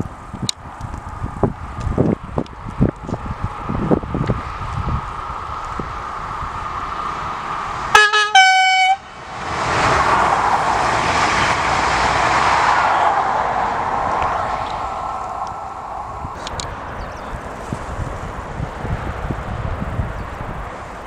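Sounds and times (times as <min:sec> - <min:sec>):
train passing at speed: 0:03.3 - 0:21.0
two-tone train horn: 0:07.9 - 0:09.1.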